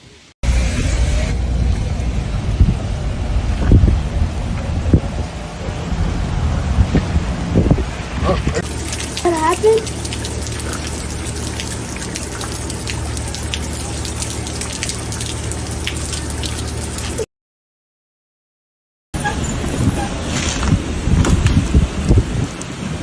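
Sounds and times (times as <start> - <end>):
rain drops tapping: 7.7 - 17.2, 20.6 - 23.0.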